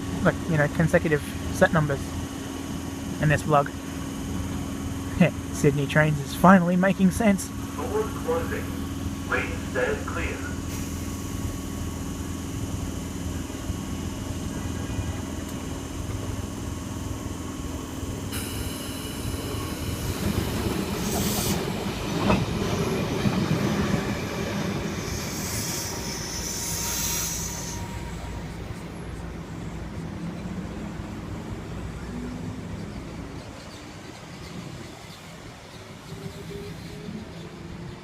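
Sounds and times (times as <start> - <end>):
electric train hum: 0.0 - 38.0
wheel and rail noise: 7.2 - 38.0
high-pitched wheel squeal: 25.4 - 28.5.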